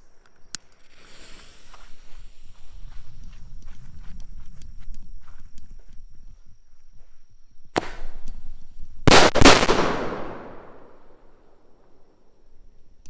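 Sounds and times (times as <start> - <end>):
firework bangs: 7.8 - 8.2, 9.1 - 11.0.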